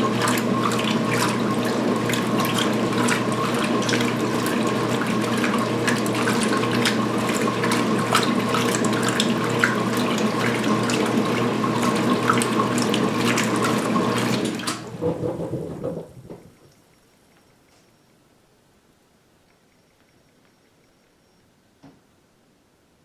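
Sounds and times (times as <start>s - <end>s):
water and towels sloshing: 0.0s - 16.6s
washer motor hum: 0.0s - 16.8s.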